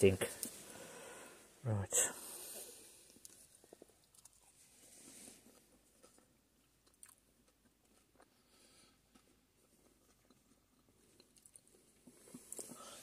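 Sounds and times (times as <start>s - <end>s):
person chewing chips: 3.2s - 4.6s, 5.5s - 13.0s.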